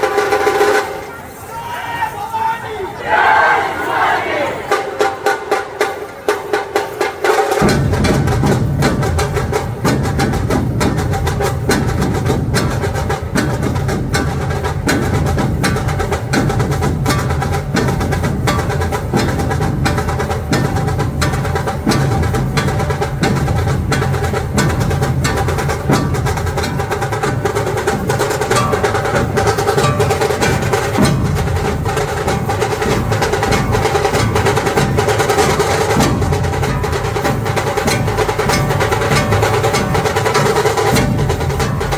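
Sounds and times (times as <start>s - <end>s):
dhol drums in fast rhythm: 4.9s - 41.9s.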